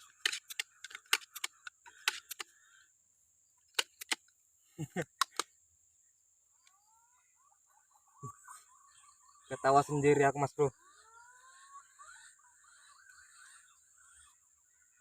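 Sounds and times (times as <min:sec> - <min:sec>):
sharp clicks and knocks: 0:00.0 - 0:02.5, 0:03.7 - 0:04.3, 0:05.1 - 0:05.5.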